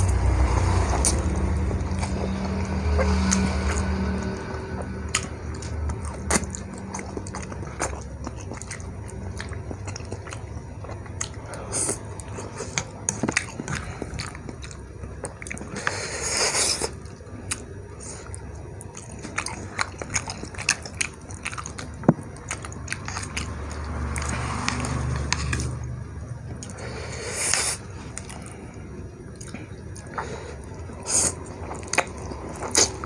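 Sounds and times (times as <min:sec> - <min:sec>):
wet chewing with smacks: 0:00.0 - 0:26.8, 0:27.4 - 0:33.0.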